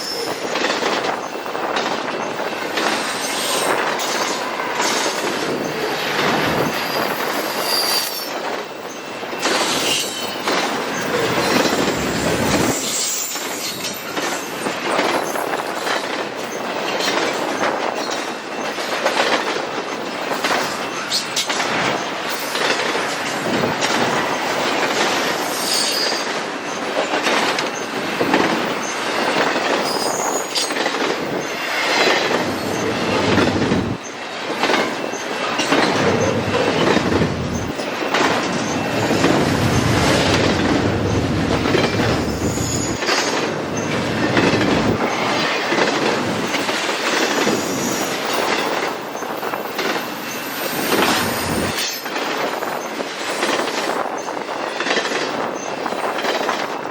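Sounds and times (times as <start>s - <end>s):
train wheels clattering over rail joints: 0.0s - 56.9s
high-pitched wheel squeals: 6.6s - 9.1s, 25.4s - 26.3s, 42.2s - 43.0s.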